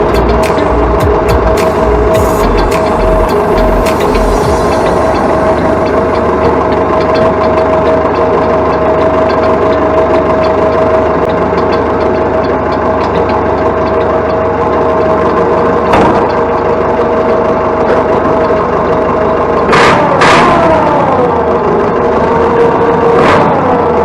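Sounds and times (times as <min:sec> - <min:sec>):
sharp clack: 0:00.0 - 0:07.6
diesel tractor engine running: 0:00.0 - 0:24.0.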